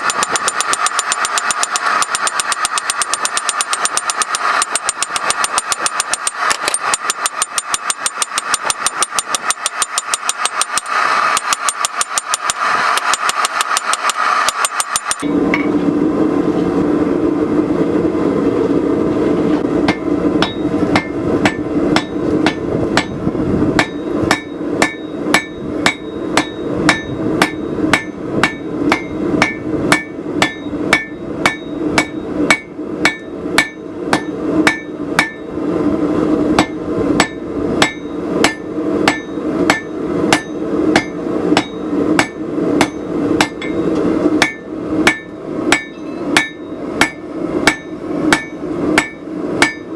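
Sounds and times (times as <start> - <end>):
forge roaring: 15.2 - 49.7
hammer ringing on anvil: 19.9 - 23.2, 23.8 - 35.5, 36.6 - 49.9.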